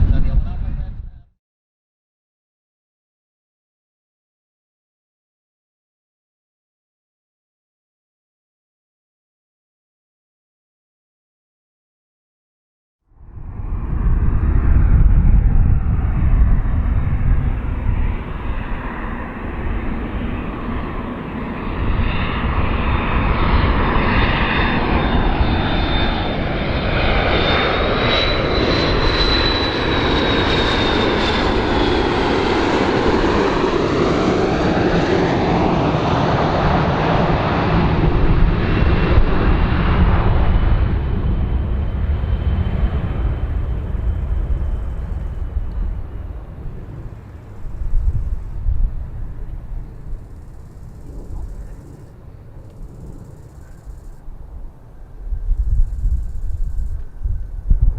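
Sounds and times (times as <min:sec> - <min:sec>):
airplane engines passing by: 0:00.0 - 0:01.3, 0:13.1 - 0:57.9.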